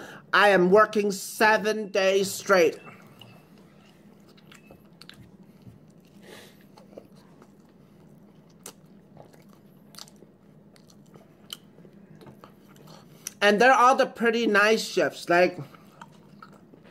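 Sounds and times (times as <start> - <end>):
person chewing food: 2.8 - 13.4, 15.6 - 16.9
mouth smacks and clicks: 8.4 - 13.4.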